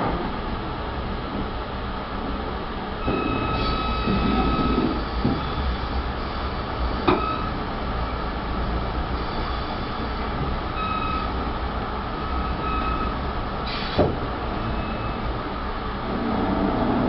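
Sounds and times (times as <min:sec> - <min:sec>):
train rolling rumble: 0:00.0 - 0:17.0
faint wheel squeals: 0:03.1 - 0:07.5.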